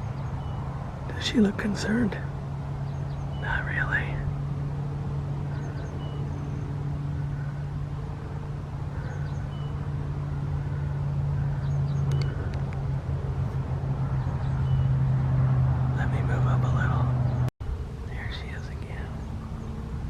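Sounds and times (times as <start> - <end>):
low motor hum: 0.0 - 20.0.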